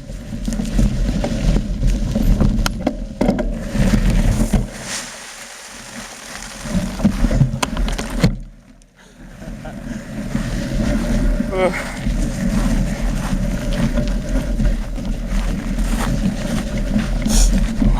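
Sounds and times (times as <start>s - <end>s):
wind and tyre noise: 0.0s - 17.9s
bike rattling clicks and knocks: 6.3s - 8.7s.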